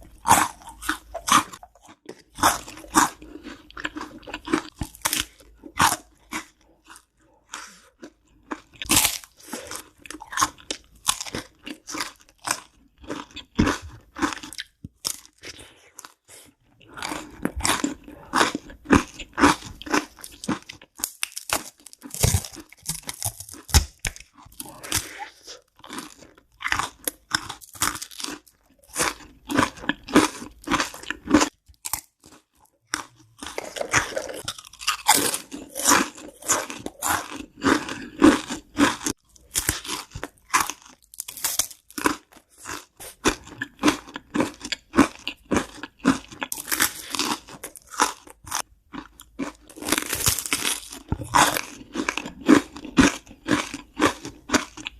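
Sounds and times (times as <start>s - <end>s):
crunching and chewing crisp food: 0.0s - 54.9s.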